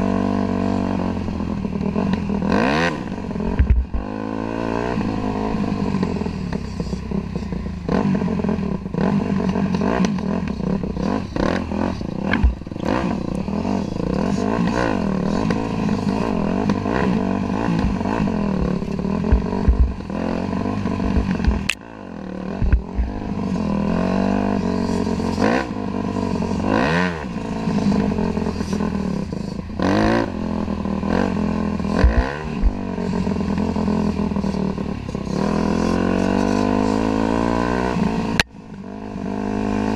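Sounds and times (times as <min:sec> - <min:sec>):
dirt bike engine revving: 0:00.0 - 0:39.9
knocks and thumps: 0:19.3 - 0:20.0.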